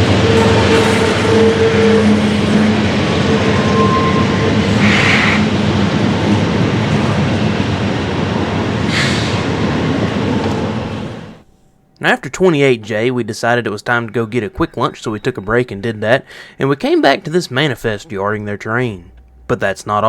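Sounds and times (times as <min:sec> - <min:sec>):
freight train rumbling past: 0:00.0 - 0:11.4.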